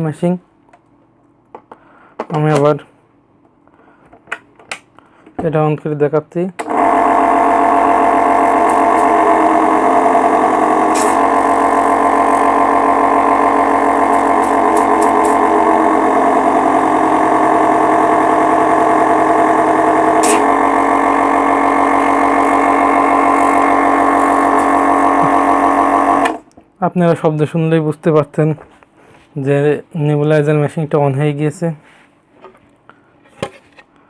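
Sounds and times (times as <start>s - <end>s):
air compressor humming: 6.6s - 26.5s.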